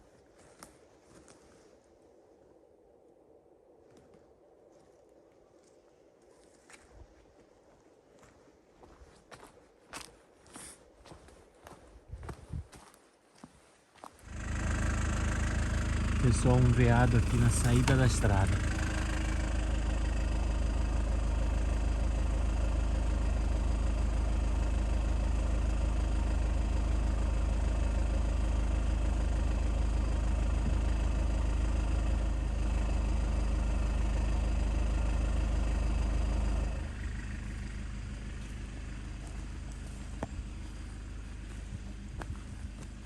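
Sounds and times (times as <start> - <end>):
car engine idling: 14.2 - 43.0
faint low hum: 36.5 - 43.0.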